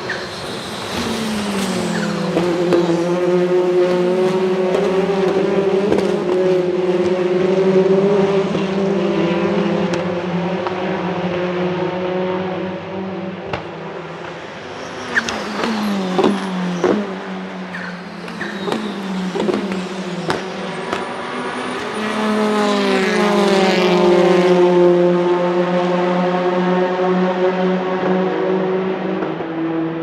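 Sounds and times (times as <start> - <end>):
exhaust pops and crackles: 4.7 - 7.2.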